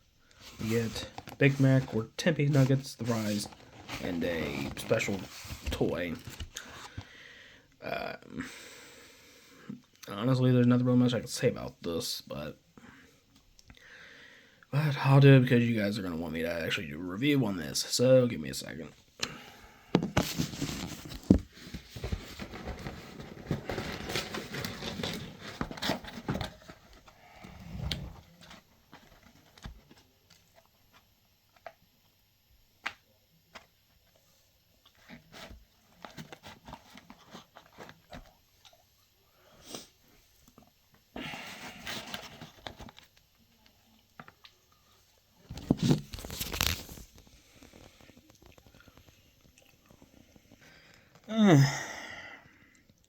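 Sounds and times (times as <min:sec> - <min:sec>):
paper packaging rustling and tearing: 0:00.4 - 0:07.0, 0:20.2 - 0:30.6, 0:45.5 - 0:49.1.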